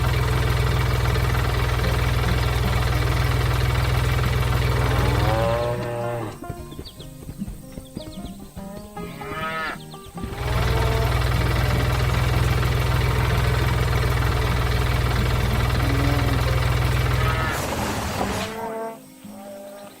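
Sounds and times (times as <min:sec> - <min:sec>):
low mechanical drone: 0:00.0 - 0:06.4, 0:10.2 - 0:18.6
farm animal calls: 0:00.0 - 0:20.0.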